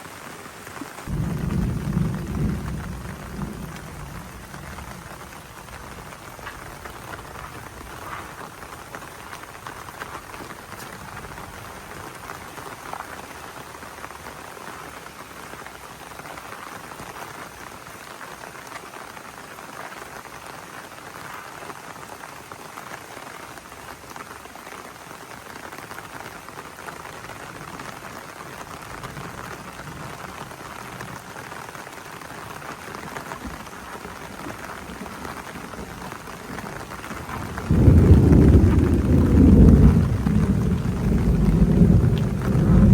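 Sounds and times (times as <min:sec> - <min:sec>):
heavy rain: 0:00.0 - 0:42.9
deep thunder clap: 0:01.0 - 0:12.1, 0:33.0 - 0:42.9.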